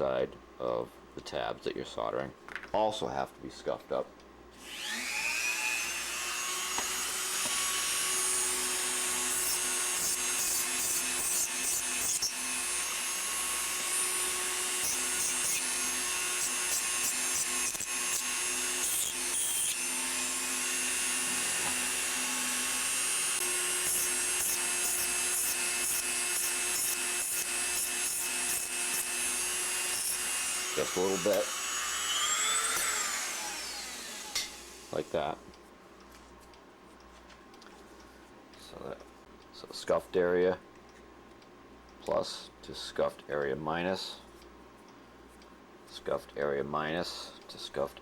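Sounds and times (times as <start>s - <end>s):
rotary tool motor whine: 4.6s - 35.1s.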